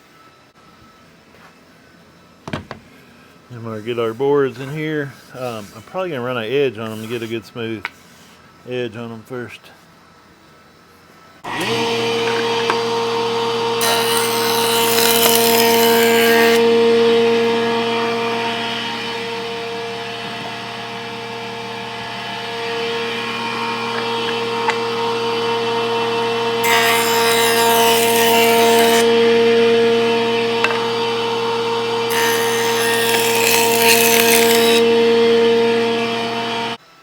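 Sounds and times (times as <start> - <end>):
woodworking power tool humming: 11.4 - 36.8
wood cutting hiss: 11.5 - 36.8.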